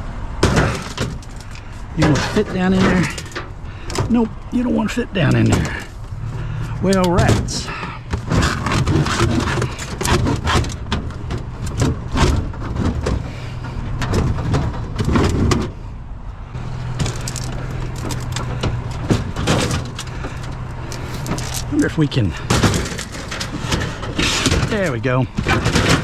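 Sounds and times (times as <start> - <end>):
low vehicle hum: 0.0 - 26.0
scrap knocking and clanking: 0.4 - 15.9, 16.5 - 26.0.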